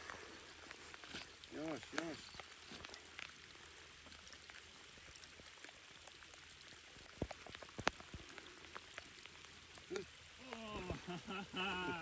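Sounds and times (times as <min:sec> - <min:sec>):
light rain falling: 0:00.0 - 0:12.0
raindrops ticking on surface: 0:00.0 - 0:12.0.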